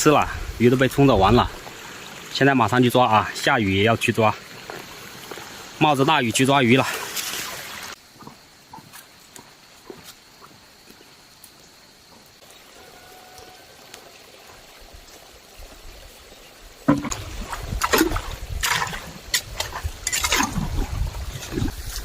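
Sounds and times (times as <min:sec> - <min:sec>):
faint steady hiss: 0:00.0 - 0:17.1
water splashing and sloshing: 0:00.0 - 0:22.0.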